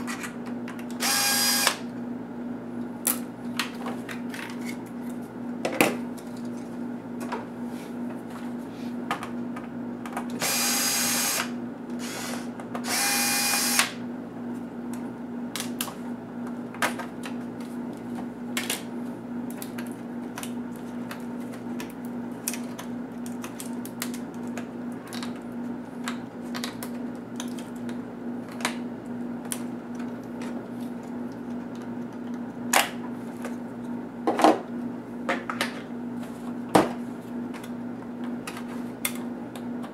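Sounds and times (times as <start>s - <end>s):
electric screwdriver whirring: 1.0s - 1.8s, 10.4s - 14.0s.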